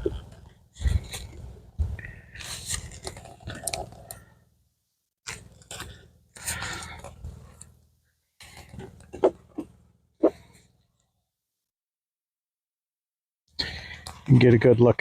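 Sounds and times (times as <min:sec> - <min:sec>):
metal tool scraping wood: 0:08.4 - 0:10.6.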